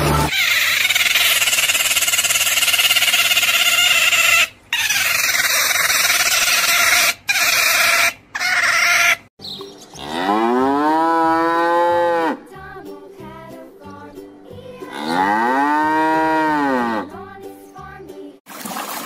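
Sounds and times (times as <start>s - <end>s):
sea otter squealing: 0.2s - 9.3s
cow mooing: 10.0s - 12.4s, 14.8s - 17.1s.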